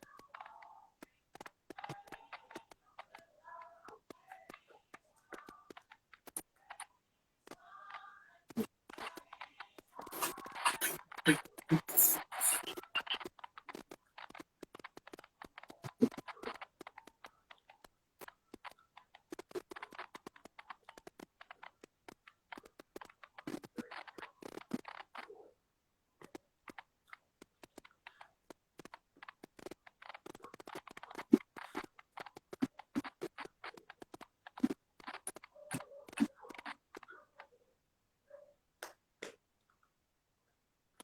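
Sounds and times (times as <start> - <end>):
scratchy rustling: 8.5 - 25.2.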